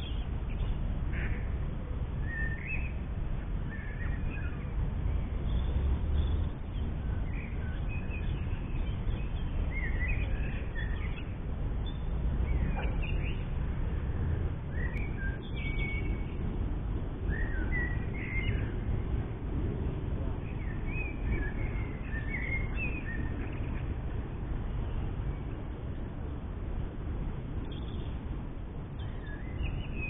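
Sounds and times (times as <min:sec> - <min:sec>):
songbirds chirping and warbling: 0:00.0 - 0:30.0
steady low rumble: 0:00.0 - 0:30.0.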